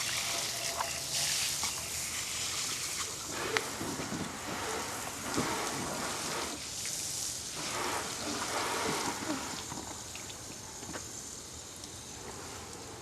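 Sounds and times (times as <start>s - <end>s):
water splashing and pattering: 0.0s - 11.2s.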